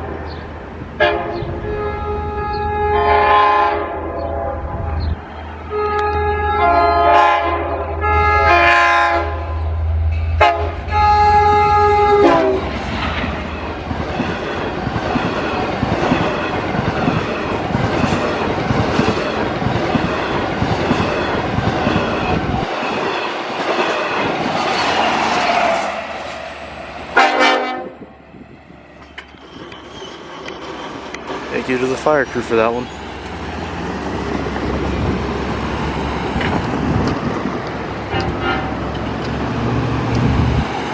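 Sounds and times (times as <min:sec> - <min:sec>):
train horn blasts: 0:01.0 - 0:05.1, 0:05.7 - 0:12.7, 0:27.1 - 0:28.1, 0:38.1 - 0:38.8
train cars rail clatter: 0:10.1 - 0:27.7, 0:28.8 - 0:40.9.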